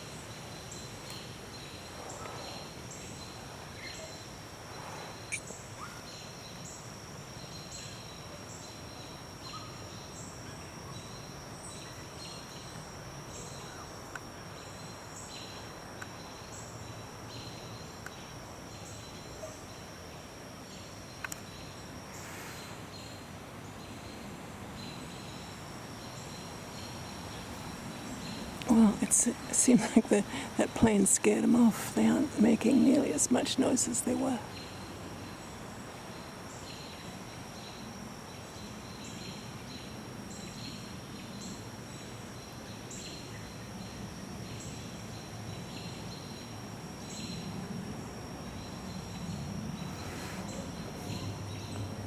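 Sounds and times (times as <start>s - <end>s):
high insect drone: 0.0s - 52.0s
faint high chirp: 5.2s - 6.2s.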